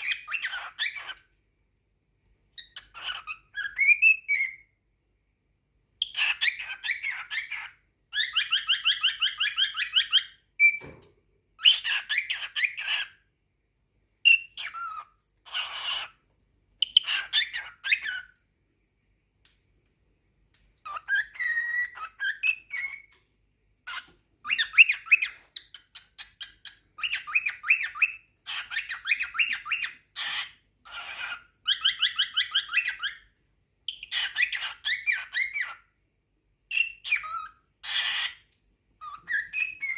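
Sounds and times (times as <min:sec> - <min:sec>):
cockatiel chattering and whistling: 0:00.0 - 0:01.3, 0:02.6 - 0:04.7, 0:06.0 - 0:10.8, 0:11.6 - 0:13.2, 0:14.2 - 0:16.2, 0:16.8 - 0:18.4, 0:20.8 - 0:23.2, 0:23.9 - 0:35.9, 0:36.7 - 0:39.9.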